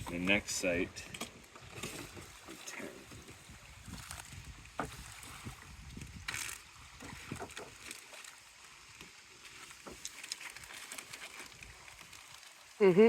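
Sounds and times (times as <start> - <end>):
canoe paddle strokes in water: 0.0 - 12.8
water splash: 3.8 - 8.6.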